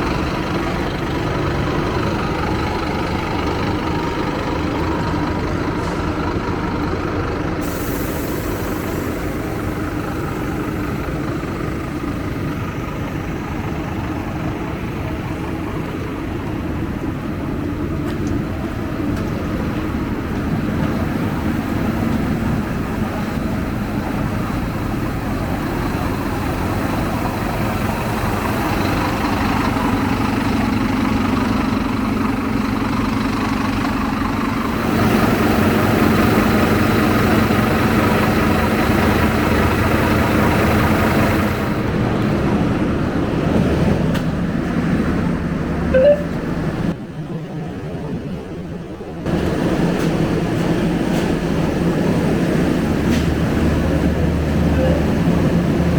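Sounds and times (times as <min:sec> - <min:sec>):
bus engine idling: 0:00.0 - 0:55.9
traffic noise: 0:00.0 - 0:55.9
card reader beep: 0:46.0 - 0:46.5.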